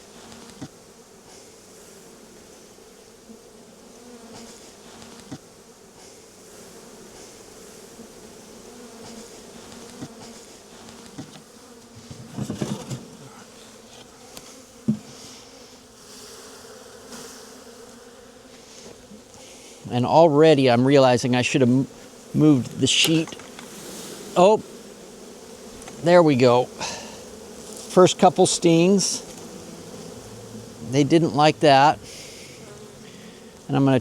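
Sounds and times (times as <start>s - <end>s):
bee swarm buzzing: 0.0s - 34.0s
rough handling noise: 9.7s - 14.1s, 22.5s - 23.8s.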